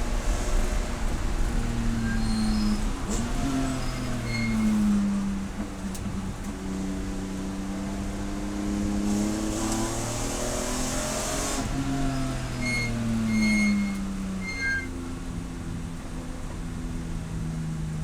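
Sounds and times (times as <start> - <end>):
brief high-pitched squeaks: 1.9 - 4.9, 12.4 - 15.0.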